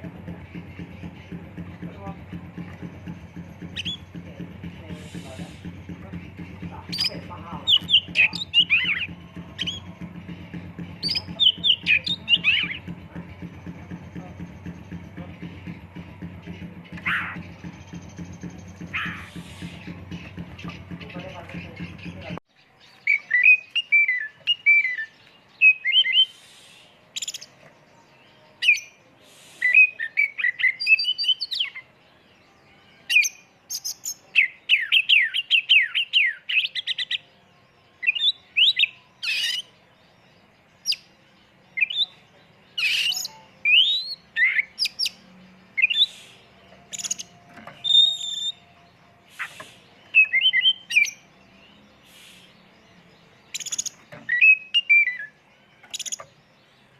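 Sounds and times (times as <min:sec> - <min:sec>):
songbird singing whistled phrases: 0:03.5 - 0:04.2, 0:06.8 - 0:10.1, 0:11.0 - 0:13.8, 0:16.9 - 0:31.9, 0:32.9 - 0:40.0, 0:40.8 - 0:41.1, 0:41.7 - 0:56.9.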